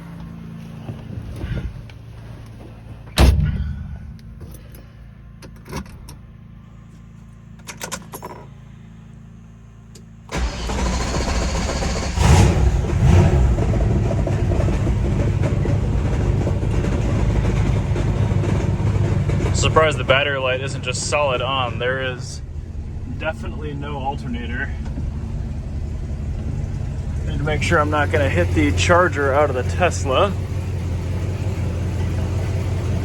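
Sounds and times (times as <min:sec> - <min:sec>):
car door shutting: 0:03.0 - 0:04.8
car engine starting and revving: 0:10.3 - 0:33.0.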